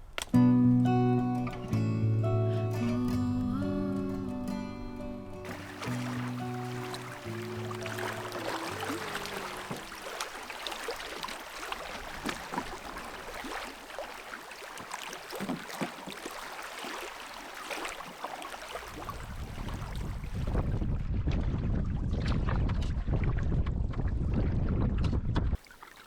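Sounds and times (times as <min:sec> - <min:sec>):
wind buffeting microphone: 0:05.5 - 0:14.3, 0:18.6 - 0:25.6
steady wash of water: 0:05.5 - 0:20.8, 0:25.6 - 0:26.0
water splashing and dripping: 0:05.5 - 0:20.8, 0:25.6 - 0:26.0.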